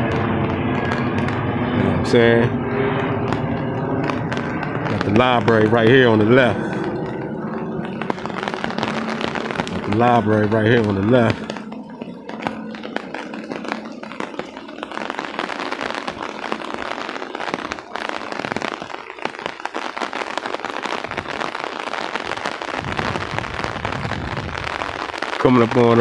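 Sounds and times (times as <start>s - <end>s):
rain drops crackling: 2.8s - 26.0s.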